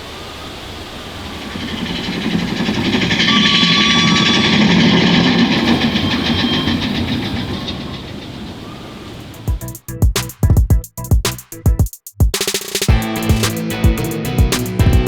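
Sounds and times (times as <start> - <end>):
roller coaster rumbling and clattering: 0.9 - 9.6.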